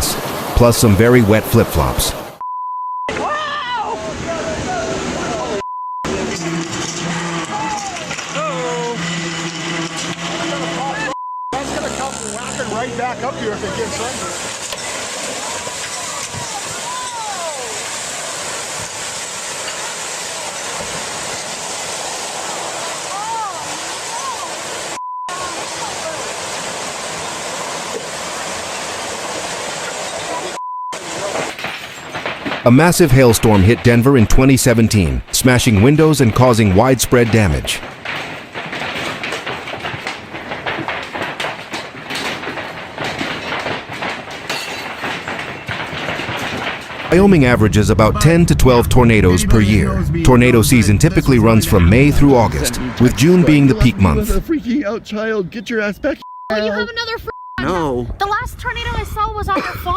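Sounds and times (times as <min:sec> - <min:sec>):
water rushing and churning: 0:00.0 - 0:02.4, 0:14.1 - 0:31.6
hail clattering on hard surfaces: 0:14.0 - 0:33.7, 0:37.1 - 0:48.6.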